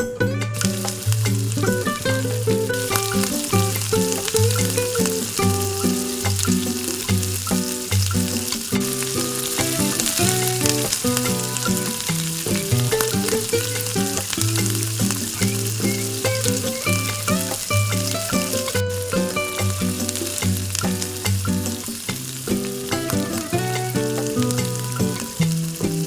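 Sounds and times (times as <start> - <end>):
background music: 0.0 - 26.0
food sizzling in a pan: 2.3 - 26.0.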